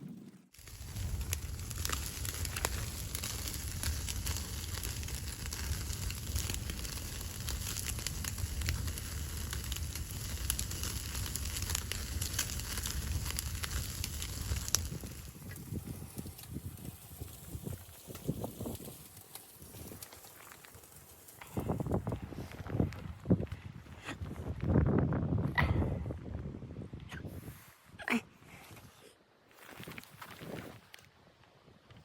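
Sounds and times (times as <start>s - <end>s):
wood fire crackling: 0.0s - 23.7s.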